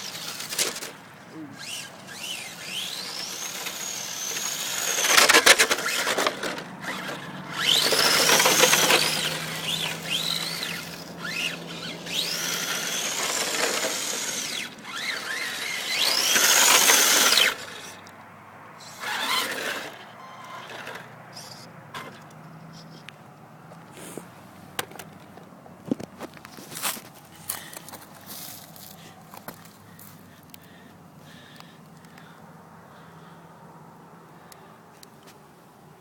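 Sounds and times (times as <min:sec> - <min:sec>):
electric motor whining: 0:00.0 - 0:18.0, 0:18.8 - 0:22.2
tyres sliding on pavement: 0:00.0 - 0:18.1, 0:18.9 - 0:22.2, 0:23.7 - 0:30.2.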